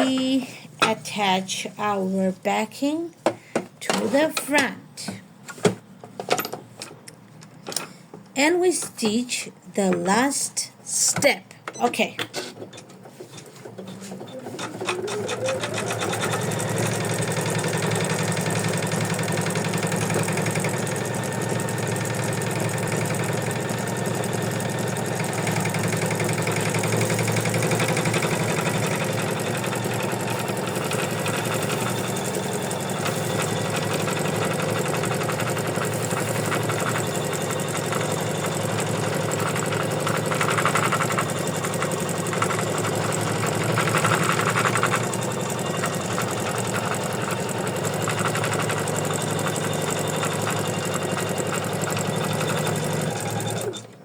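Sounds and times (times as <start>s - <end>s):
embroidery machine stitching: 13.6s - 54.0s.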